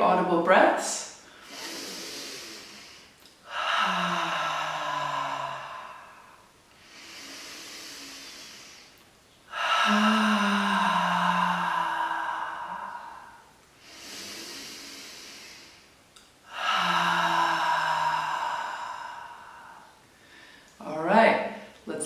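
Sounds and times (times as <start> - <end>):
woman inhaling with a hiss: 1.2 - 20.8
woman sighing: 3.5 - 6.4, 9.5 - 13.4, 16.5 - 19.9.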